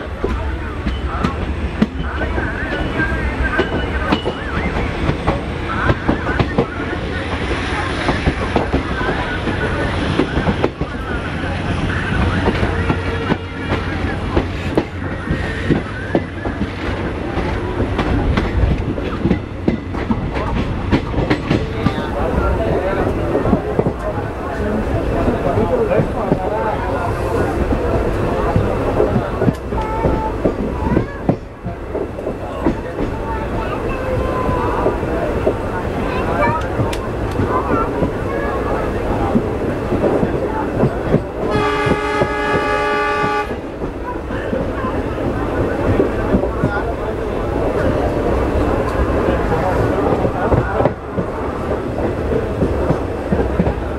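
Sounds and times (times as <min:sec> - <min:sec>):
train rumbling on rails: 0:00.0 - 0:53.9
train horn blast: 0:41.5 - 0:43.6.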